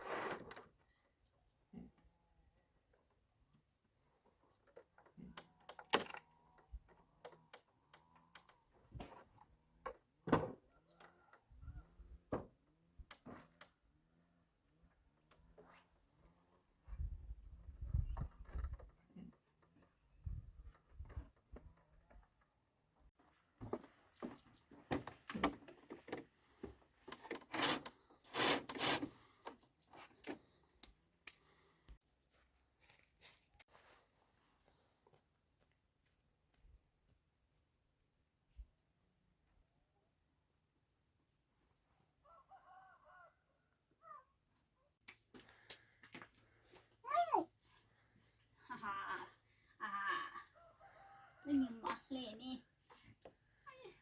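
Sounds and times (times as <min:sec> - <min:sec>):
wood rubbing and scraping: 0:23.6 - 0:30.5.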